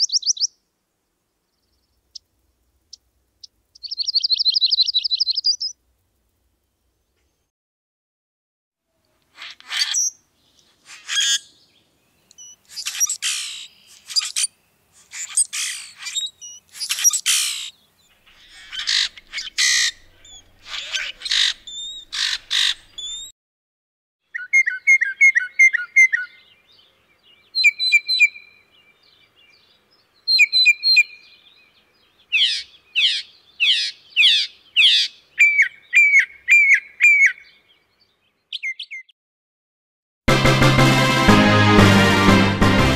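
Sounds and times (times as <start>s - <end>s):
bird chirps and whistled phrases: 0.0s - 0.6s, 3.8s - 5.8s, 10.9s - 23.3s, 24.3s - 39.1s
harsh rasping bird calls: 9.2s - 23.3s, 27.5s - 37.9s.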